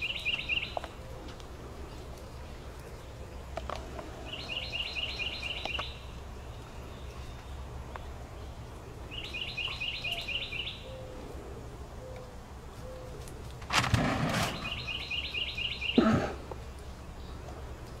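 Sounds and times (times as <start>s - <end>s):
songbird chirping rapidly: 0.0s - 13.1s, 13.8s - 17.7s
rustling burst: 13.6s - 15.0s.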